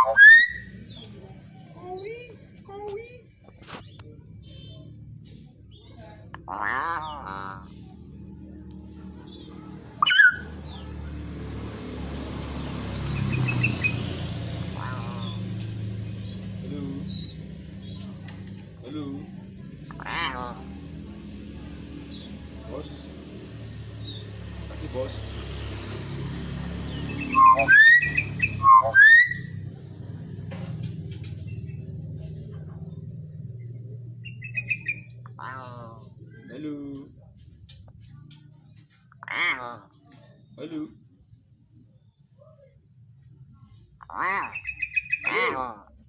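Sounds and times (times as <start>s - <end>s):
bird rising whistled calls: 0.0s - 0.8s, 10.0s - 10.5s, 27.2s - 29.6s
myna shrill call: 10.0s - 10.5s
low rumble: 29.4s - 36.5s.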